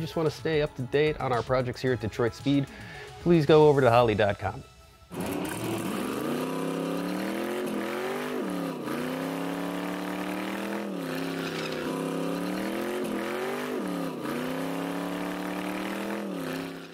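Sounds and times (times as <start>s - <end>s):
car engine revving: 5.1s - 16.9s.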